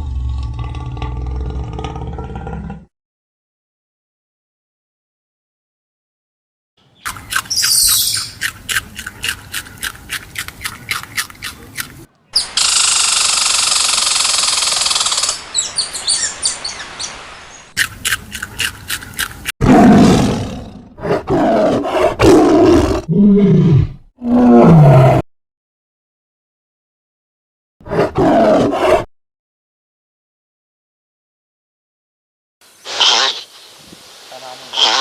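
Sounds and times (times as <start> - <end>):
deep animal roaring calls: 0.0 - 2.9, 19.6 - 25.2
rapid clicking animal calls: 6.8 - 16.2, 17.8 - 19.5
loud animal hiss: 32.6 - 35.0.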